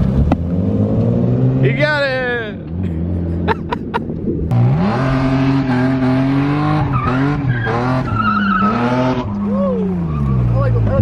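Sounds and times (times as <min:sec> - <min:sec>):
car engine revving hard: 0:04.5 - 0:09.4.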